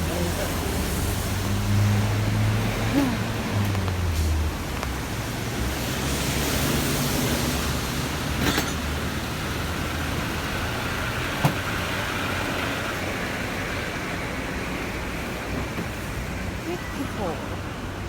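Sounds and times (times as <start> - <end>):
heavy rain: 0.0 - 8.3
road traffic rumble: 0.0 - 18.0.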